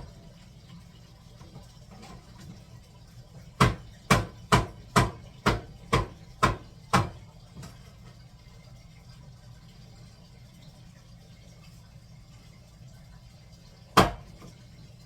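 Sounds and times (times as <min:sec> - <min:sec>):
knife chopping on cutting board: 0:03.6 - 0:07.2, 0:14.0 - 0:14.2.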